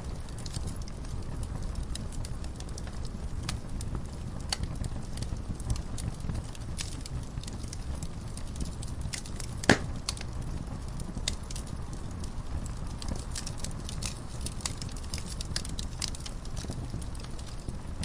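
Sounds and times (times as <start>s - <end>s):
wood fire crackling: 0.0s - 18.0s
loud pop of fire: 8.5s - 11.4s.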